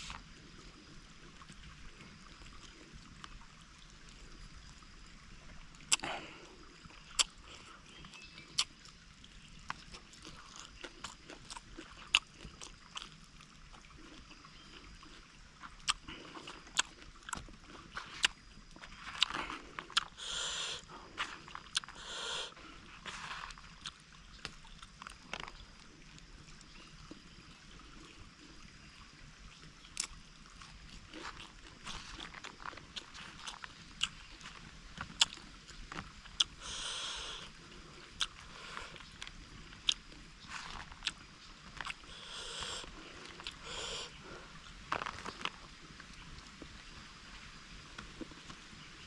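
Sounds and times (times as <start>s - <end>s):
person chewing: 5.9s - 6.3s, 6.9s - 8.7s, 9.7s - 13.2s, 13.8s - 25.6s, 29.9s - 45.6s
food crunching: 9.7s - 13.2s, 13.8s - 25.6s, 29.9s - 37.5s, 38.2s - 45.7s.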